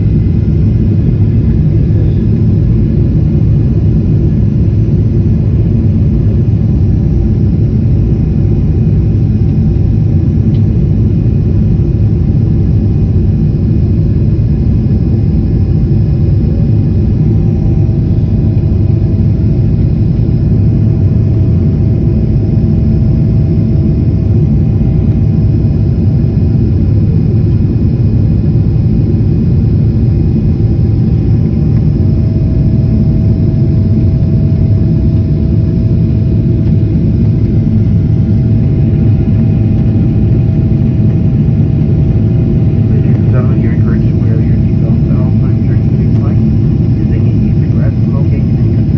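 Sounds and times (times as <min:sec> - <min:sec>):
airplane cabin rumble: 0:00.0 - 0:48.9
faint steady tones: 0:28.6 - 0:48.9.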